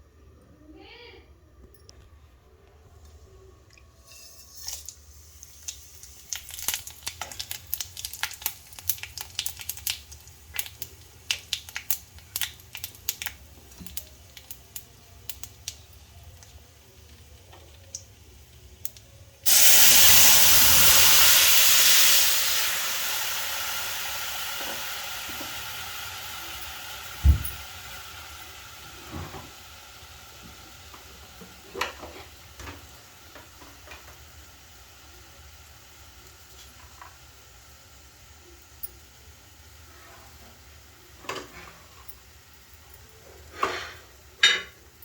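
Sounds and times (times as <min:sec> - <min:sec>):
liquid sizzling in hot pan: 0:04.0 - 0:45.0
hot pan crackling and popping: 0:04.1 - 0:39.9.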